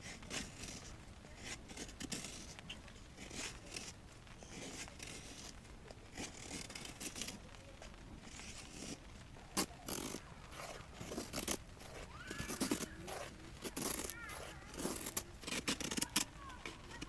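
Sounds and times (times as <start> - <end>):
material rustling and crinkling: 0.0 - 17.0.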